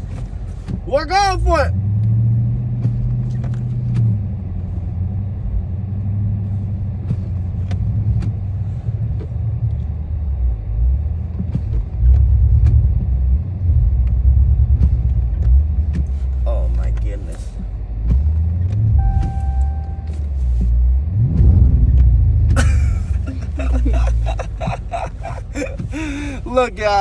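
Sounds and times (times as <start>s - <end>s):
car engine under throttle: 0.0s - 27.0s.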